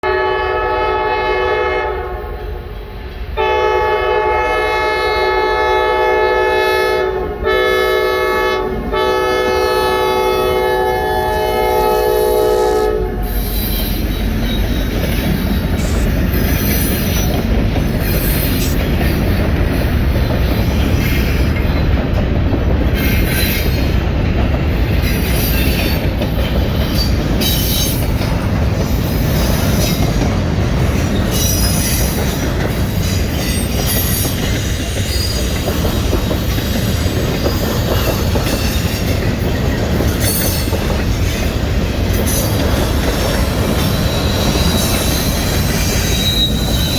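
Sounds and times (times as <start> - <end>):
train horn chord: 0.0 - 13.4
train wheels rumbling on rails: 0.0 - 46.9
wheel squeals: 13.2 - 19.2, 31.0 - 32.4, 33.0 - 35.6, 37.4 - 41.5, 42.1 - 46.9.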